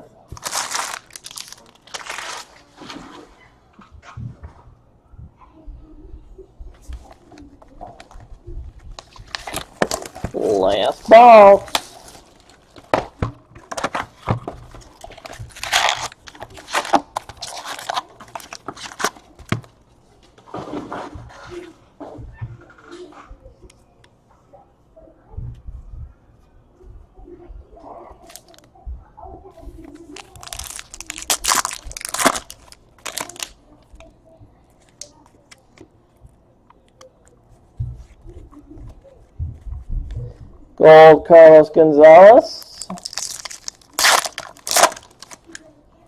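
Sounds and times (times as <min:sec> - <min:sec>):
packaging torn and crinkled: 0:00.3 - 0:02.6, 0:09.0 - 0:12.9, 0:14.8 - 0:19.6, 0:30.1 - 0:33.6, 0:42.6 - 0:45.6.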